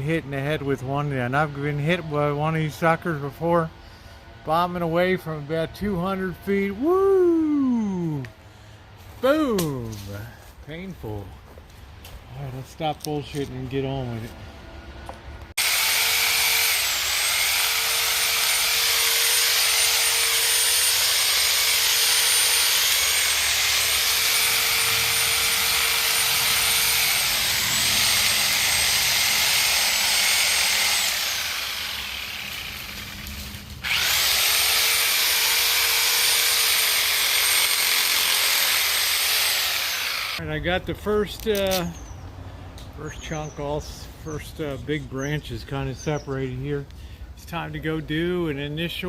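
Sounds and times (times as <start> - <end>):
reciprocating saw cutting branches: 15.6 - 40.4.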